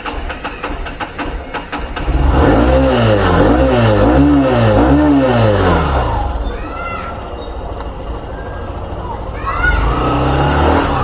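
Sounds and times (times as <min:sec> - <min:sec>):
motorcycle engine revving: 0:00.0 - 0:06.6, 0:07.2 - 0:11.0.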